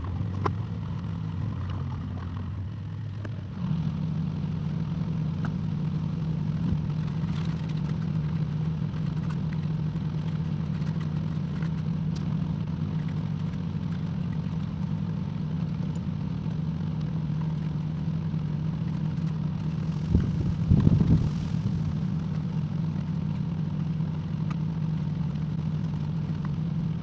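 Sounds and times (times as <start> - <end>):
excavator engine running: 0.0 - 27.0.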